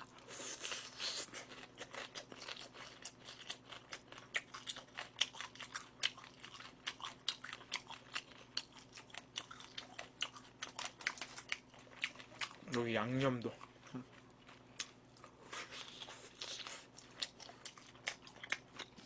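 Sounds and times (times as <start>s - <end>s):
person chewing crunchy fried food: 0.0s - 19.0s.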